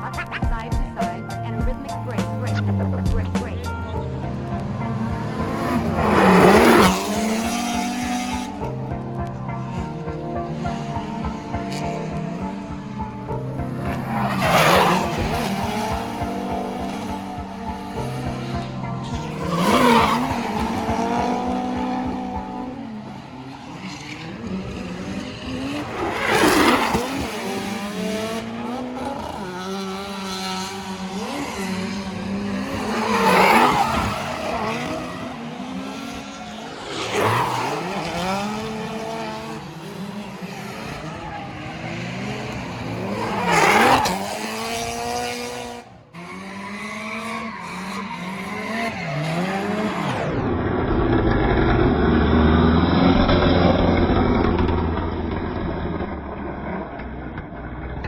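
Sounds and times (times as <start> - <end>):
car engines revving: 0.0 - 58.0
tyre squeal: 46.4 - 49.8.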